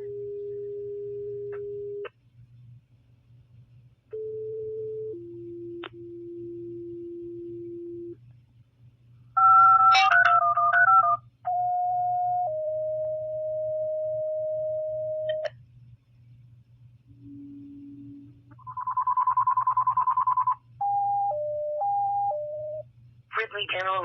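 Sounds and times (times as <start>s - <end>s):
steady low radio hum: 14.9s - 18.8s, 22.3s - 24.0s.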